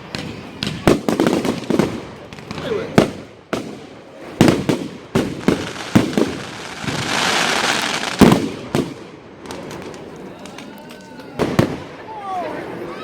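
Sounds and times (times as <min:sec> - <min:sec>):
firework hiss: 0:00.0 - 0:10.2
fireworks bangs: 0:00.0 - 0:12.8.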